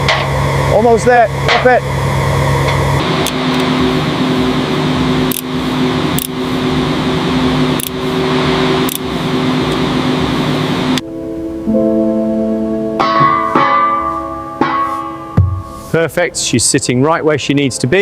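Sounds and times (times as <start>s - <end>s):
sharp metal clanks: 0.0s - 0.4s, 1.4s - 1.9s, 13.0s - 16.0s
machinery hum: 0.0s - 18.0s.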